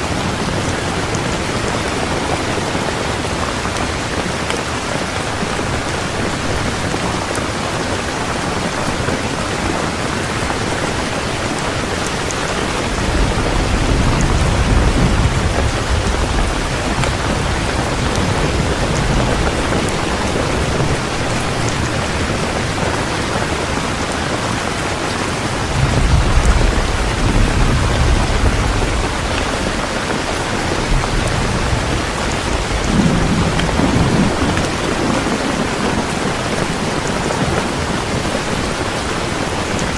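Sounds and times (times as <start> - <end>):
heavy rain falling: 0.0 - 39.9
thunder rumbling: 8.5 - 39.9.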